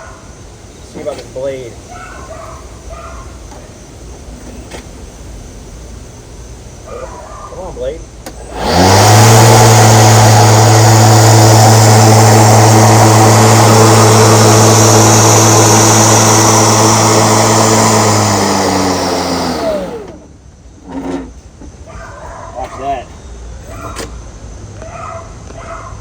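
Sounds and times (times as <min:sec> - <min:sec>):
electric lawn mower whirring: 0:08.2 - 0:21.6.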